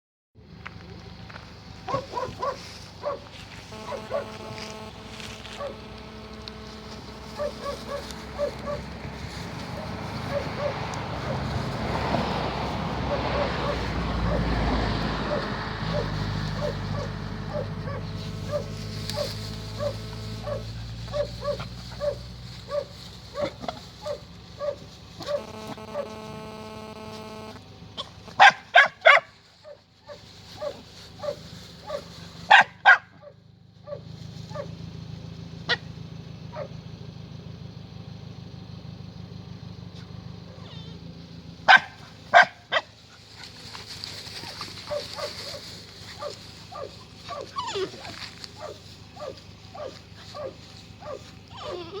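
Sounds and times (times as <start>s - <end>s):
low steady hum: 0.4s - 28.7s
steady humming tone: 0.9s - 28.4s
puppies yelping loudly: 1.9s - 4.4s, 5.2s - 5.9s, 7.0s - 26.2s, 28.0s - 34.8s, 41.7s - 52.0s
puppies whimpering and yipping: 7.3s - 11.6s, 13.0s - 26.1s, 40.5s - 41.0s, 42.4s - 52.0s.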